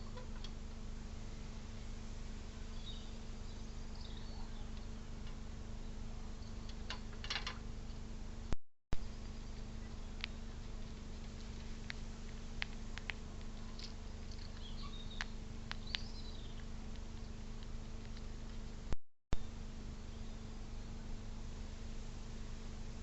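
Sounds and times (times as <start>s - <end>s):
electrical hum: 0.0s - 23.0s
animal clicks: 11.2s - 18.6s
high bird chirps: 14.3s - 16.6s.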